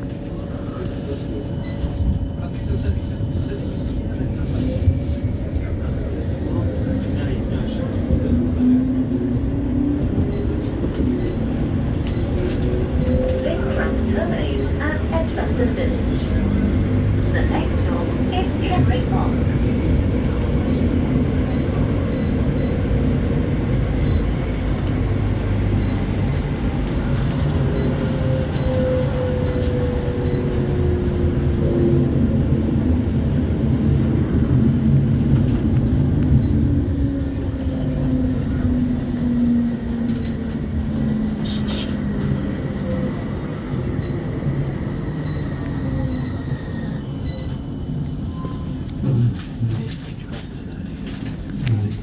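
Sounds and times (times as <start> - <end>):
tram wheels rumbling: 0.0 - 52.0.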